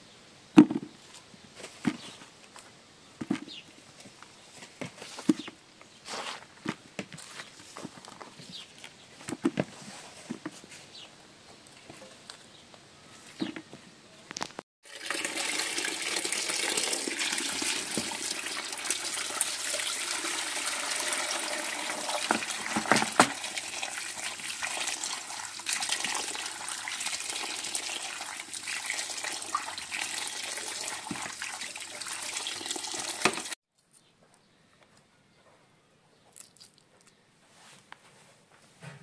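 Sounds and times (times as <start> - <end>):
water running from tap: 14.9 - 33.6.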